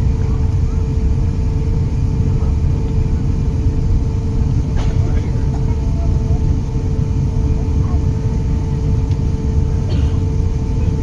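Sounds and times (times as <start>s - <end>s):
airplane engine drone in cabin: 0.0s - 11.0s
constant low hum: 0.0s - 11.0s.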